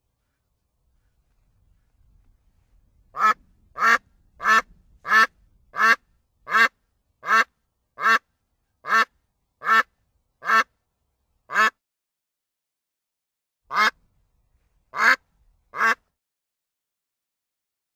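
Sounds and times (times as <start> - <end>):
duck quacking: 3.2 - 10.7, 11.5 - 11.8, 13.7 - 14.0, 15.0 - 16.0.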